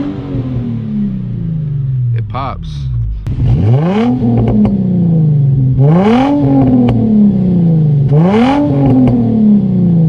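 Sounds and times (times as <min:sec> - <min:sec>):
car engine revving: 0:00.0 - 0:10.0
exhaust pops: 0:01.6 - 0:04.9.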